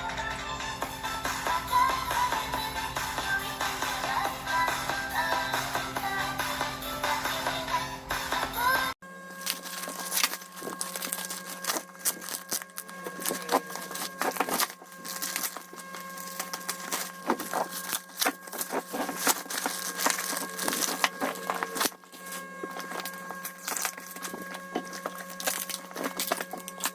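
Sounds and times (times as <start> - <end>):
steady low hum: 0.0 - 26.9
packaging crackling and rustling: 9.3 - 26.9.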